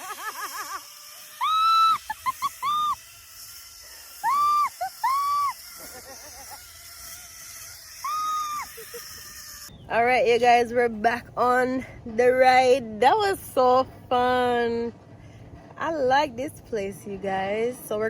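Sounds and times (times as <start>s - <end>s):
people whooping: 1.2s - 3.0s, 4.1s - 5.6s, 8.0s - 8.9s.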